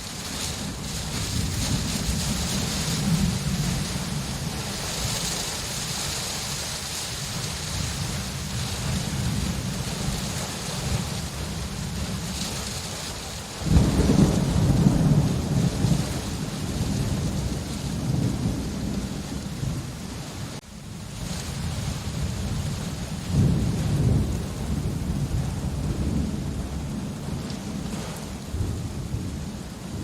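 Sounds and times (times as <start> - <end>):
steady rain falling: 0.0 - 30.0
thunder rolling: 0.0 - 30.0.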